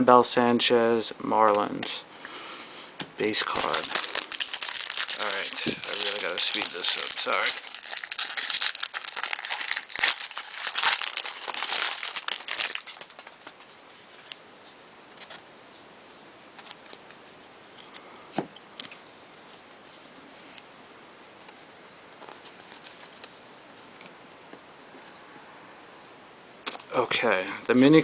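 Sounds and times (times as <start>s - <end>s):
plastic wrappers crinkling and tearing: 3.2s - 14.4s.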